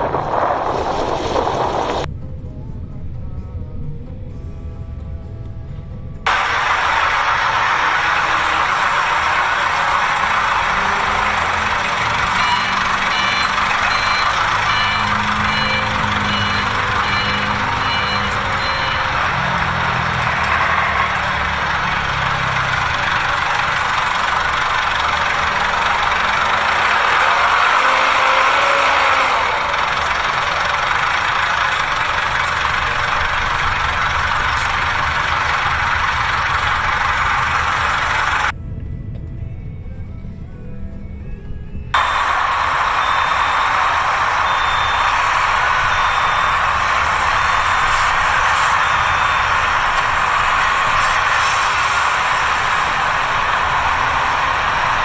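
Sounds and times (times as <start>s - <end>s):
vehicle engine humming: 0.0s - 55.0s
reversing alarm beeping: 6.3s - 55.0s.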